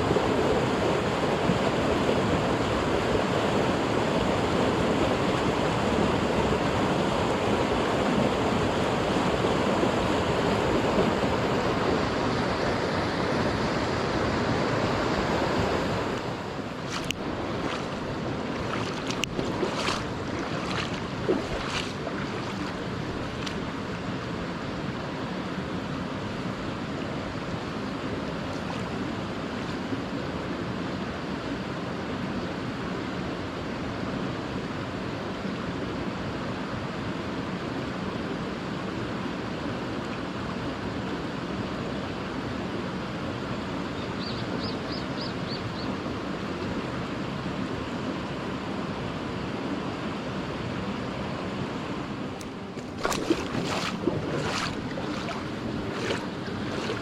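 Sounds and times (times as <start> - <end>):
mountain stream rushing: 0.0 - 30.8, 50.6 - 57.0.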